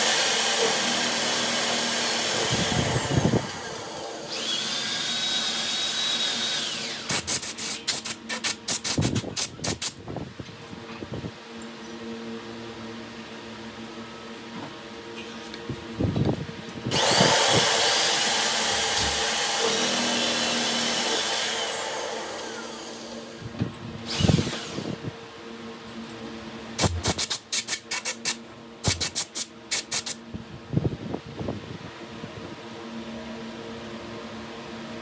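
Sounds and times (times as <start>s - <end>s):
handheld power tool running: 0.0s - 9.9s, 16.9s - 23.5s, 24.1s - 25.0s, 26.8s - 30.2s
short sharp bursts: 26.8s - 30.2s.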